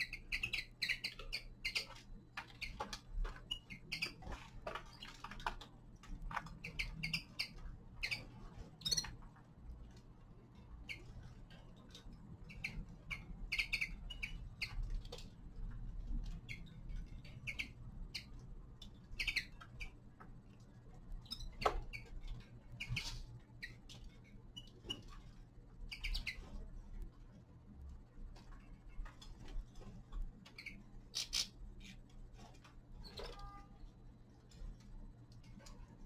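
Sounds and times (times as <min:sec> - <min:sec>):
finches chirping: 0:00.0 - 0:05.2, 0:06.4 - 0:09.2, 0:12.4 - 0:15.0, 0:16.4 - 0:18.4, 0:19.0 - 0:20.0, 0:21.2 - 0:23.9, 0:25.8 - 0:26.6, 0:30.5 - 0:32.0
low steady hum: 0:00.0 - 0:36.0.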